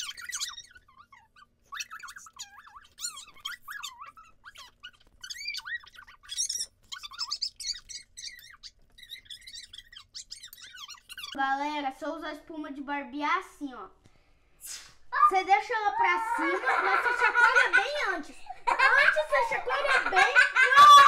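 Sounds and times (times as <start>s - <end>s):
slime squeaking while stirred: 0.0s - 11.4s.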